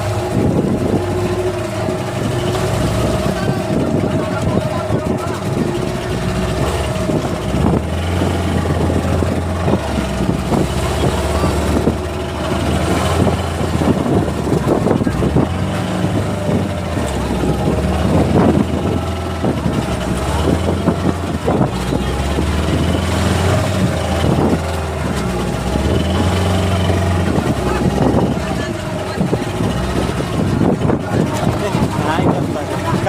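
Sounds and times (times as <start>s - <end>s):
boat engine drone: 0.0s - 33.0s.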